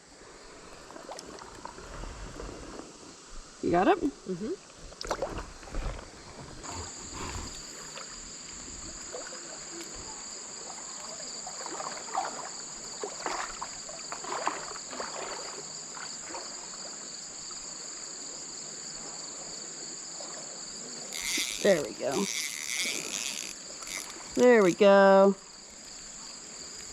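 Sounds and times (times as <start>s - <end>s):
creek water splashing: 0.4s - 2.4s, 5.0s - 17.9s, 20.1s - 26.9s
insects shrilling: 6.6s - 13.2s, 21.0s - 26.9s.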